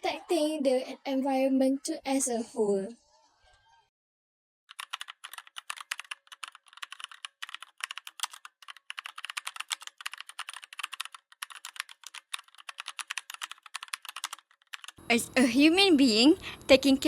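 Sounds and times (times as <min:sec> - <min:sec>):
typing on computer keyboard: 0:04.7 - 0:15.0.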